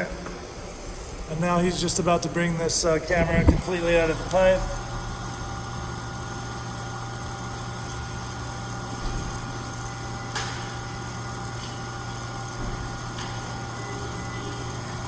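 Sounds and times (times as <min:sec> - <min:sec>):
mechanical hum with thin tones: 0:00.0 - 0:15.0.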